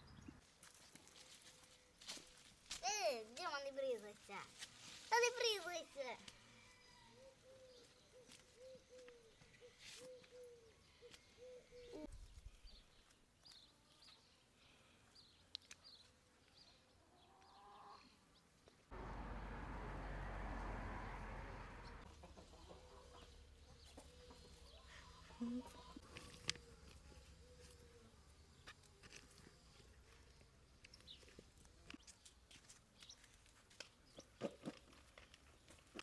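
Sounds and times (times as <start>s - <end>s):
small birds chirping: 5.2s - 18.5s, 21.8s - 36.0s
hens clucking: 21.8s - 26.1s.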